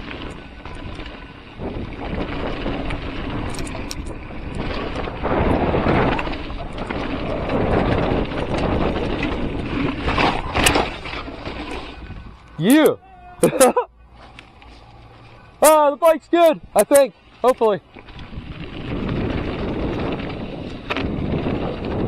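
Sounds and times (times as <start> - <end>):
wind on microphone: 0.0 - 12.6, 18.1 - 22.0
mountain bike tyre noise: 0.0 - 22.0.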